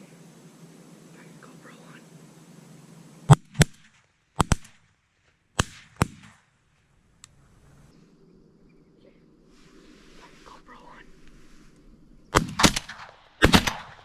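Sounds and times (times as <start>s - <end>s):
shotgun shots: 3.3s - 4.9s, 5.5s - 6.5s, 12.3s - 14.0s.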